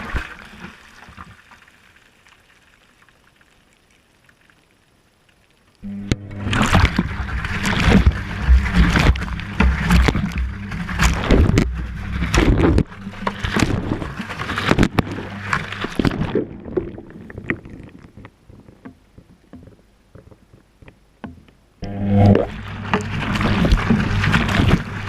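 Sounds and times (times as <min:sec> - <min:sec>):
water dripping and trickling: 0:00.0 - 0:05.9
washing machine motor humming: 0:05.8 - 0:15.9, 0:21.8 - 0:25.0
water sloshing: 0:05.8 - 0:25.0.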